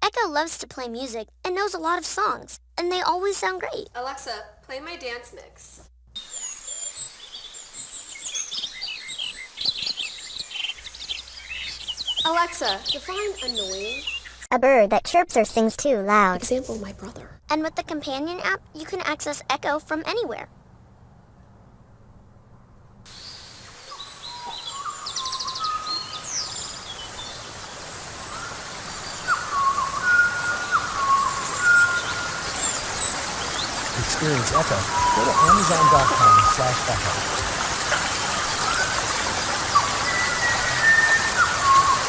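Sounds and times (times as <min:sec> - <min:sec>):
outdoor background hiss: 0:00.0 - 0:14.9, 0:15.9 - 0:42.0
birds chirping and twittering: 0:06.2 - 0:14.5, 0:23.1 - 0:42.0.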